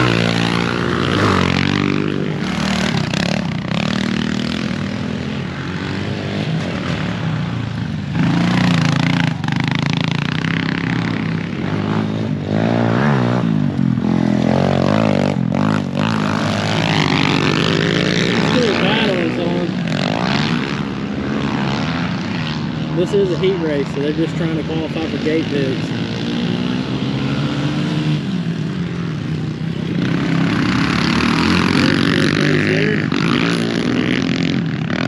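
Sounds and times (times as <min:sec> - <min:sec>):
pit bike engines revving: 0:00.0 - 0:35.0.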